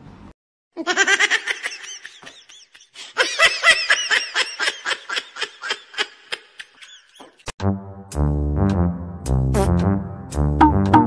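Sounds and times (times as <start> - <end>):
high-pitched laughter: 0.8 - 7.5.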